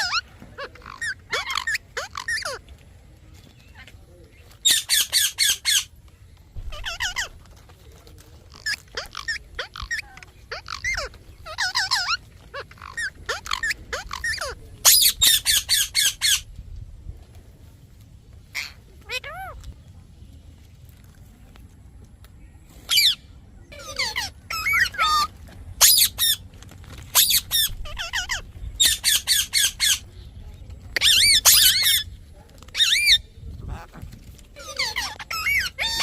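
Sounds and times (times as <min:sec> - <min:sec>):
parrot chirps and squawks: 0:00.0 - 0:02.6, 0:04.6 - 0:05.9, 0:06.7 - 0:07.4, 0:08.5 - 0:16.4, 0:18.5 - 0:19.6, 0:22.9 - 0:26.4, 0:27.2 - 0:30.0, 0:31.0 - 0:32.1, 0:32.7 - 0:36.0.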